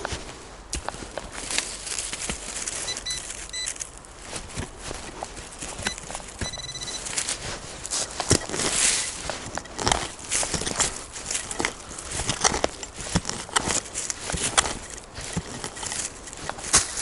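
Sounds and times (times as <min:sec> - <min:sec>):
footsteps on leaf litter: 0:00.0 - 0:17.0
leaves rustling: 0:00.0 - 0:17.0
short high beeps: 0:02.9 - 0:03.8, 0:05.9 - 0:07.1.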